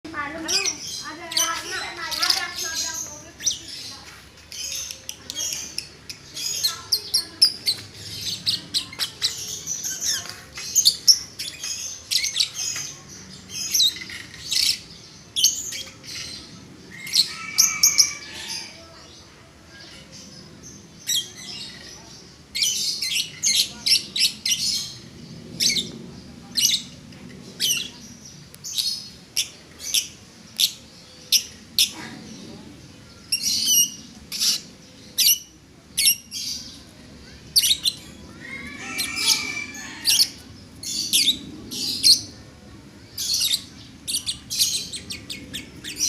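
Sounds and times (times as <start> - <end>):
lovebird chirping and squawking: 33.3 - 36.6, 37.6 - 42.3.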